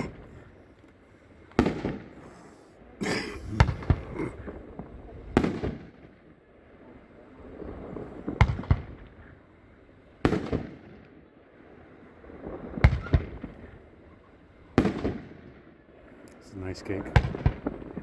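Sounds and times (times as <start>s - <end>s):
firework bangs with echo: 1.5s - 2.4s, 3.6s - 6.2s, 8.2s - 9.3s, 10.2s - 11.1s, 12.6s - 13.8s, 14.8s - 15.6s, 17.0s - 18.0s.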